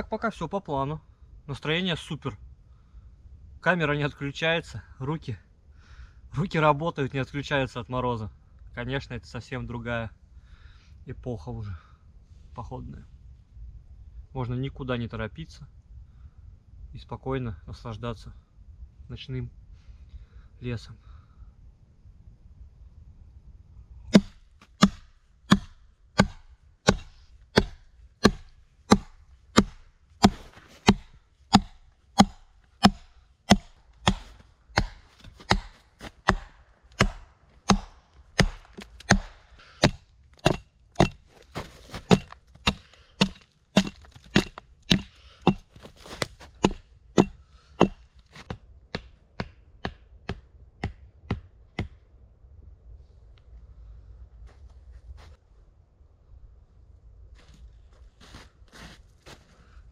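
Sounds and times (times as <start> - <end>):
axe chopping wood: 24.1 - 52.0.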